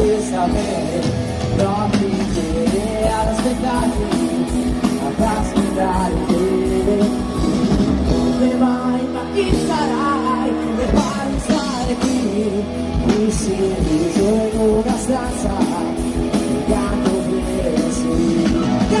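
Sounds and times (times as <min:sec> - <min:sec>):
person singing: 0:00.0 - 0:19.0
rock band playing live: 0:00.0 - 0:19.0.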